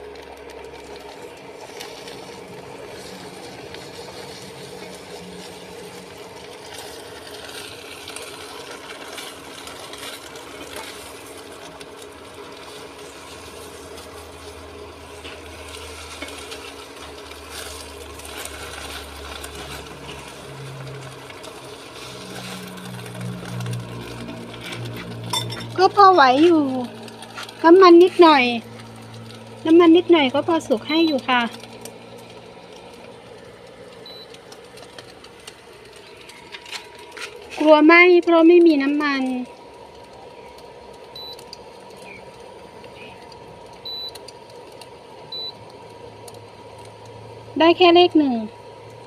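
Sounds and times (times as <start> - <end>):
low steady hum: 0.0 - 49.0
vegetables sizzling in a pan: 0.0 - 49.0.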